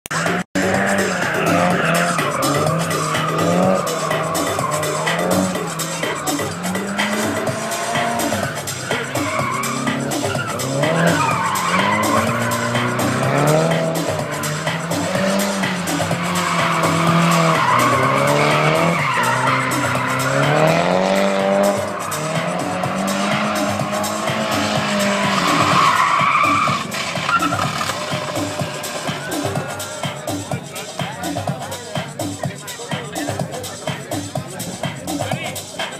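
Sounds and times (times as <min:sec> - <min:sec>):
car engine revving: 0:00.1 - 0:35.9
tyre squeal: 0:01.0 - 0:14.2, 0:14.8 - 0:29.3.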